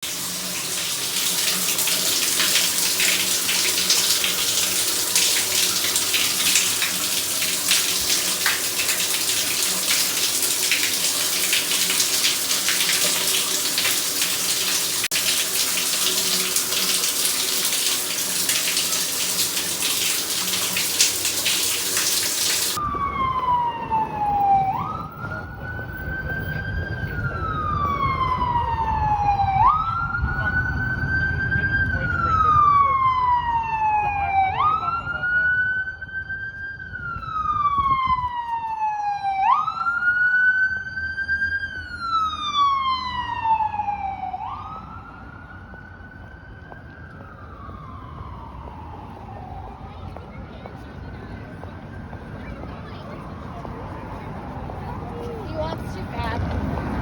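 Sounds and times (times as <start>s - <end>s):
shower water spraying: 0.0s - 22.8s
wailing siren: 0.3s - 22.0s, 22.7s - 57.0s.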